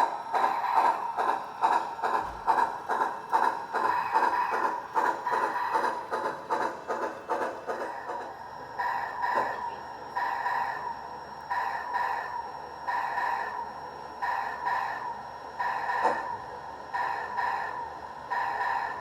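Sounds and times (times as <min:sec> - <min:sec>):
steady steam sound: 0:00.0 - 0:09.6
steam locomotive exhaust chuffs: 0:00.0 - 0:19.0.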